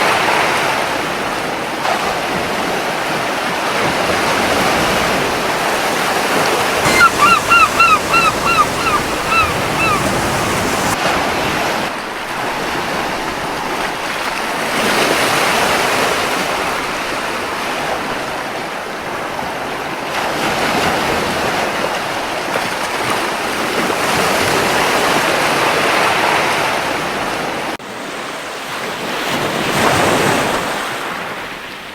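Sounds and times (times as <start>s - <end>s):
ocean surf on beach: 3.7s - 11.8s
seagull calling: 6.8s - 11.0s.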